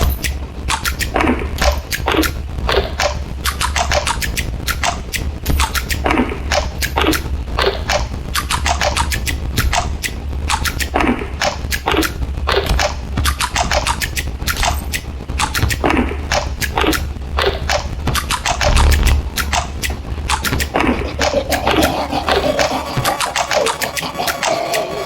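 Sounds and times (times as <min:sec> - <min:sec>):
quick falling electronic zaps: 0:18.5 - 0:19.6
steady low hum: 0:18.5 - 0:23.3.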